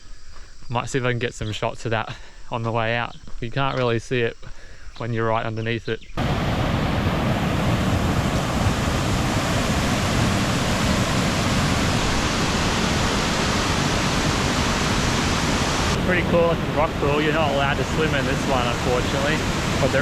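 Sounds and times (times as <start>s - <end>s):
water rushing over rock: 6.2s - 20.0s.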